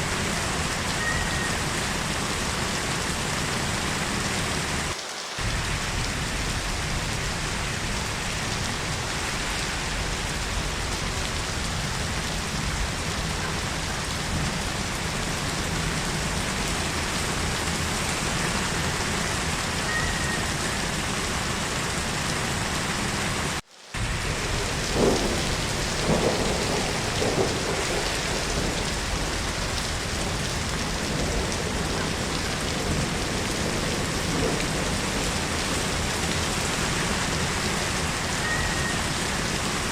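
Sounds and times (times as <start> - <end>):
heavy rain falling: 0.0 - 39.9
low thunder rumbles: 5.4 - 19.7, 24.0 - 39.9.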